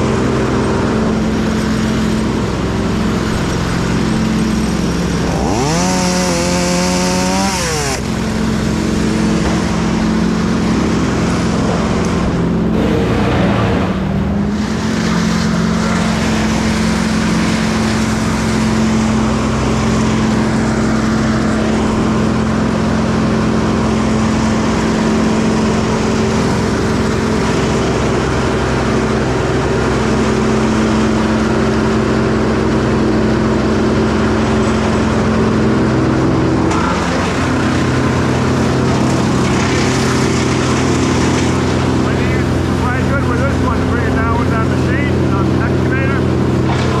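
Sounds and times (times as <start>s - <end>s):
heavy machinery droning: 0.0s - 47.0s
motor revving up: 0.4s - 31.9s.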